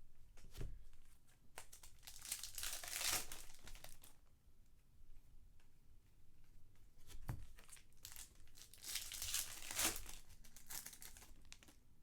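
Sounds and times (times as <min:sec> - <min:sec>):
card wrappers tearing and crinkling: 0:01.8 - 0:04.0, 0:08.0 - 0:11.8.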